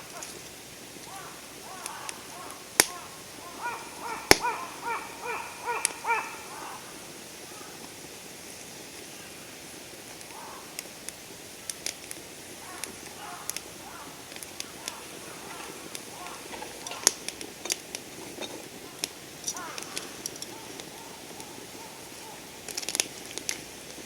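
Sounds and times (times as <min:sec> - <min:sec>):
campfire crackling and popping: 0:00.0 - 0:24.0
bird calling repeated notes: 0:01.1 - 0:07.8, 0:12.6 - 0:17.2, 0:19.5 - 0:22.6.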